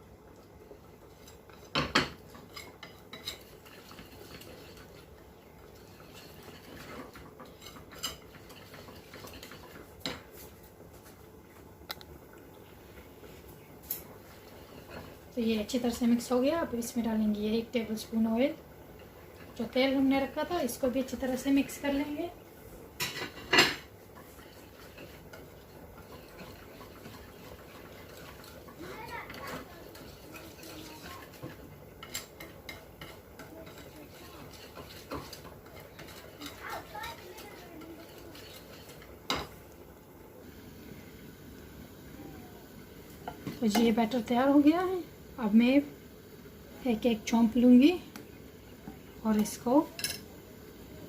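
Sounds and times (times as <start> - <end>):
light ticks of stirring: 0.0 - 17.0, 17.7 - 39.9, 43.0 - 44.5, 48.1 - 50.3
soft scraping of batter: 2.3 - 11.3, 24.0 - 39.2.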